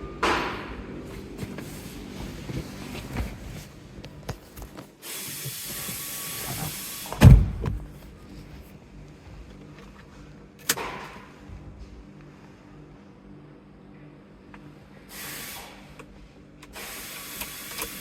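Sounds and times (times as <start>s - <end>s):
hiss: 5.0s - 7.3s, 15.1s - 16.0s, 16.8s - 18.0s
car door thump: 7.1s - 8.0s.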